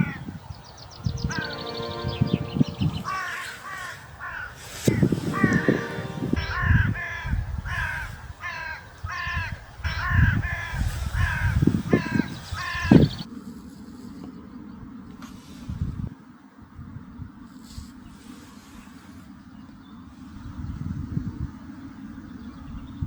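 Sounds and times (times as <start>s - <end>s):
crow cawing: 3.1s - 4.7s, 5.4s - 13.0s.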